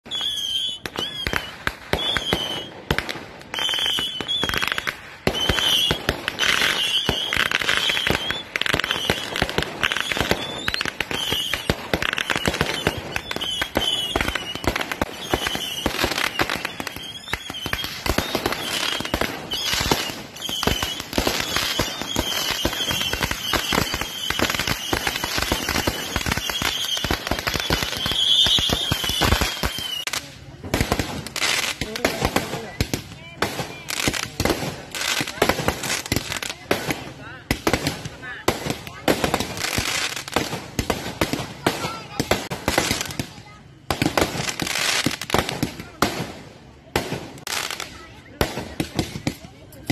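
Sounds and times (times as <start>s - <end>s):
fireworks banging and crackling: 0.0s - 49.9s
wavering high whistle: 0.1s - 2.8s, 9.9s - 30.1s.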